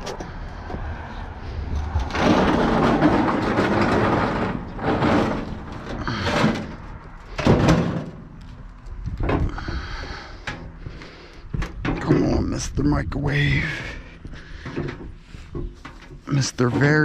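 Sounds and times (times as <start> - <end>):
appliance rattling: 2.1 - 8.2.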